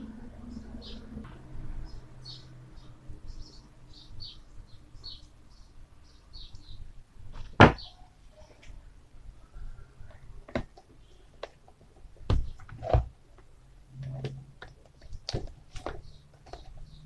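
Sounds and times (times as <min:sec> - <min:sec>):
small bird chirping: 0:01.8 - 0:06.9, 0:07.8 - 0:08.6, 0:15.9 - 0:17.0.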